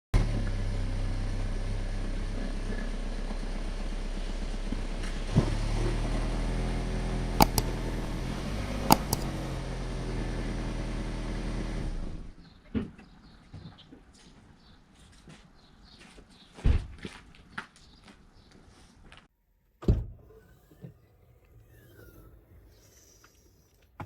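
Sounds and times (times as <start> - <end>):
sharp clicks: 7.4 - 9.5.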